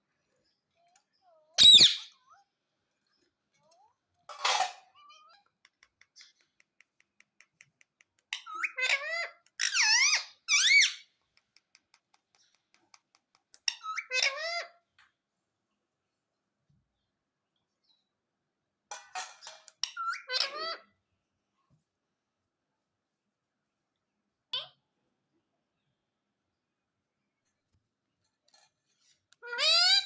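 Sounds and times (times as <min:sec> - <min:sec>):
parrot whistling and squeaking: 0:01.6 - 0:02.2, 0:08.4 - 0:11.1.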